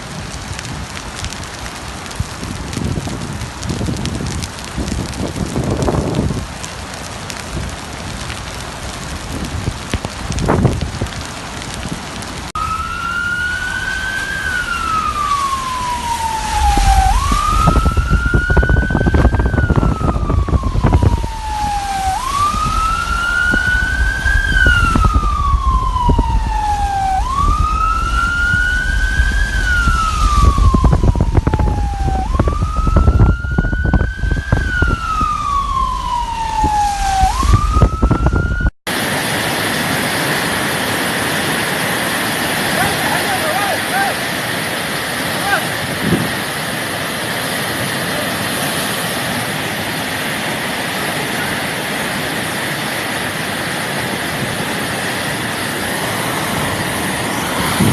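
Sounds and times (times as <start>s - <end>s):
heavy rain: 0.0s - 57.9s
emergency siren wailing: 0.1s - 57.9s
low rumble: 14.5s - 38.7s.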